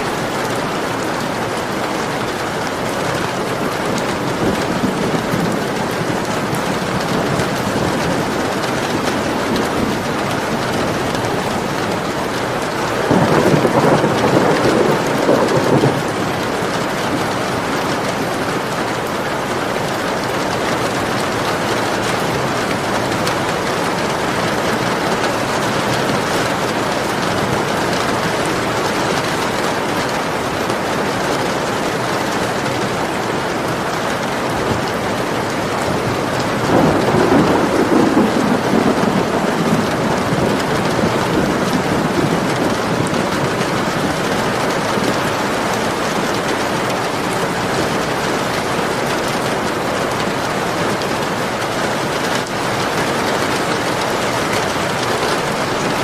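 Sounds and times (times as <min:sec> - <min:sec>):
heavy rain: 0:00.0 - 0:56.0
thunder rolling: 0:00.1 - 0:18.4, 0:34.7 - 0:48.7.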